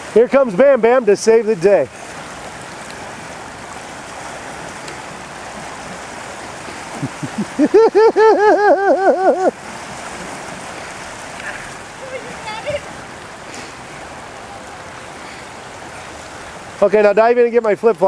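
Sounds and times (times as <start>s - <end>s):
creek water running: 0.0s - 18.0s
rapid laughter: 7.0s - 9.5s.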